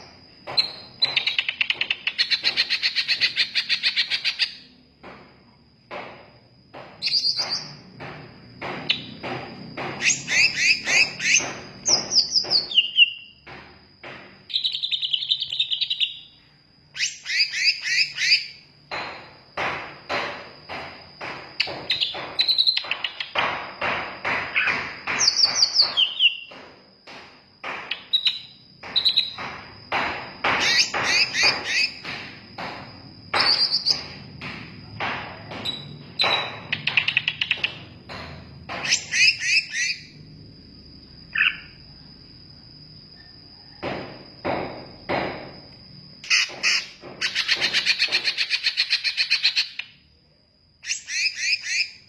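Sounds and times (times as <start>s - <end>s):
bird singing chirps and whistles: 10.0s - 13.4s, 14.5s - 16.4s, 17.0s - 18.6s, 21.9s - 23.3s, 25.2s - 26.5s, 28.0s - 29.4s.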